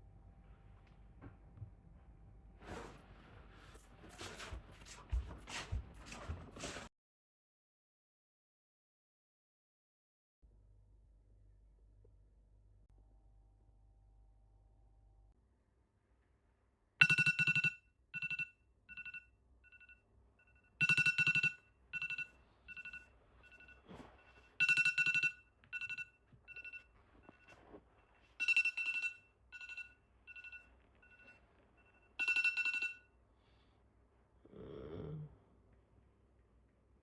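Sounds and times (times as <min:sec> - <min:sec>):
two-tone trilling ringtone: 0:17.0 - 0:27.6, 0:28.2 - 0:33.1.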